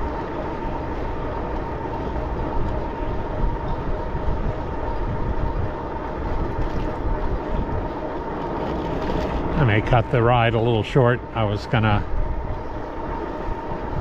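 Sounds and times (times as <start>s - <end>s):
faint whine: 0.0s - 14.0s
wind on microphone: 2.0s - 10.0s, 12.0s - 14.0s.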